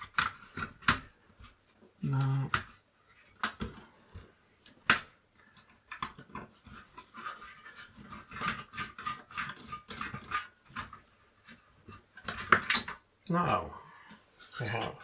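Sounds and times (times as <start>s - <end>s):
scraping and rustling: 5.5s - 13.0s, 14.0s - 15.0s.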